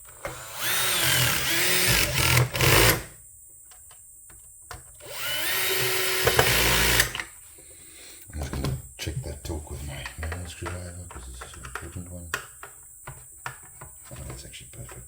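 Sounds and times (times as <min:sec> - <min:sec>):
power drill motor whirring: 0:00.0 - 0:03.2, 0:05.0 - 0:07.3.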